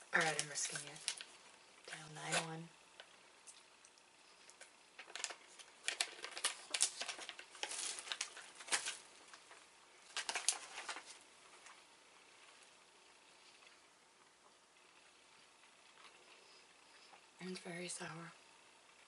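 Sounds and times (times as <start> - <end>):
plastic wrapper crinkling: 0.1 - 3.7, 4.5 - 11.8.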